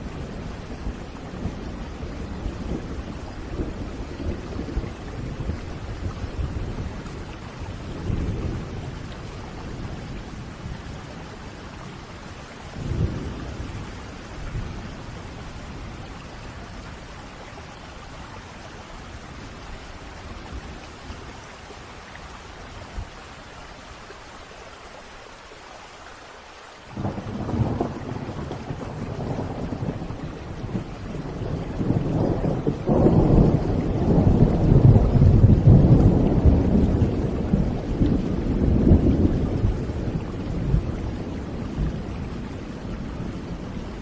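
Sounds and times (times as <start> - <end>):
thunder rumbling: 0.0 - 17.4, 26.9 - 44.0
steady rain: 0.0 - 44.0.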